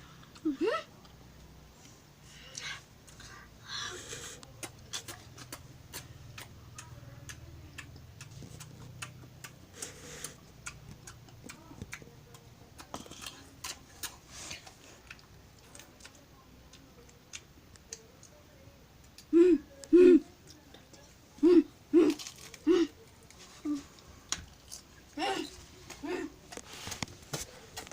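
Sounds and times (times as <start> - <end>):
wet chewing smacks: 4.4 - 18.4.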